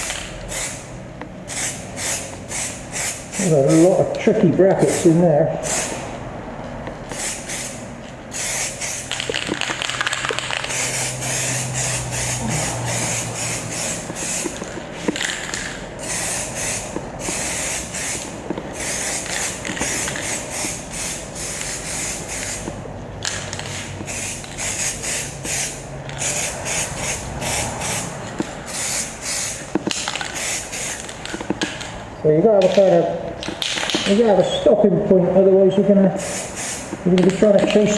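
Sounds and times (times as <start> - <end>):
aerosol spray can hissing: 7.2 - 15.1, 16.0 - 22.7, 23.6 - 31.1, 36.2 - 36.9.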